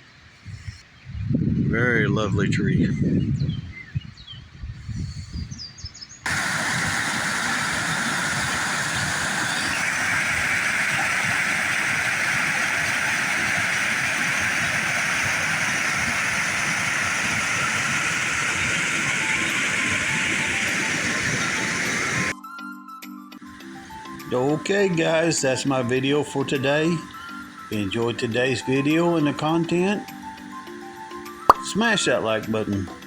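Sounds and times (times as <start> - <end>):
fast-flowing creek water rushing: 6.3 - 22.3.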